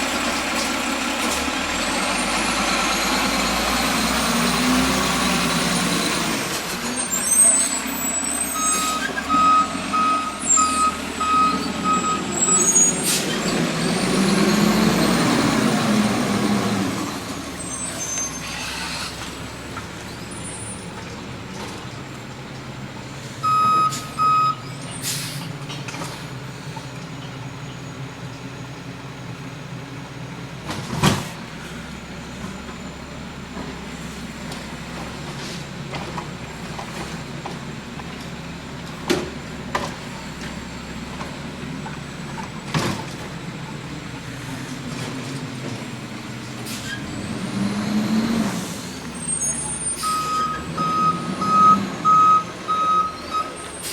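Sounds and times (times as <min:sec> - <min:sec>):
diesel engine revving: 0:00.0 - 0:53.9
air brakes hissing: 0:07.2 - 0:09.3, 0:12.4 - 0:13.5, 0:17.6 - 0:19.3, 0:24.8 - 0:26.4, 0:46.6 - 0:47.1, 0:48.4 - 0:50.6, 0:53.1 - 0:53.9
reversing beeper: 0:07.4 - 0:13.1, 0:23.4 - 0:24.8, 0:49.2 - 0:53.9.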